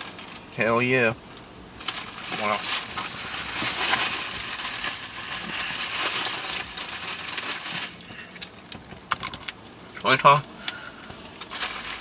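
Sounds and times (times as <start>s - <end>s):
plastic packaging crinkling: 1.8s - 8.2s, 11.4s - 12.0s.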